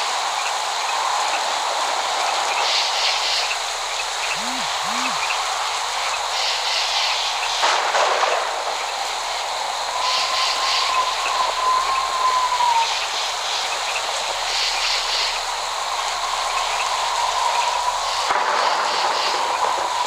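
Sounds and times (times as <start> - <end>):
rain hiss: 0.0 - 20.0
low hoots: 4.2 - 5.5.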